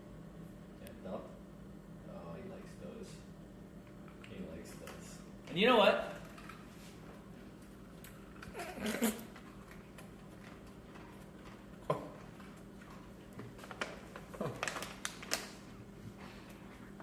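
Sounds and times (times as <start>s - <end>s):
dog chewing crunchy treat: 6.1s - 17.0s.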